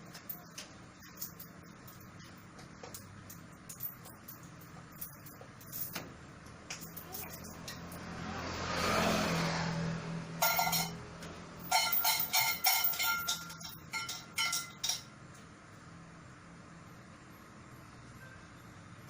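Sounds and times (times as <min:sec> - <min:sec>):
small hard objects clinking: 0:10.4 - 0:11.0, 0:11.6 - 0:15.1.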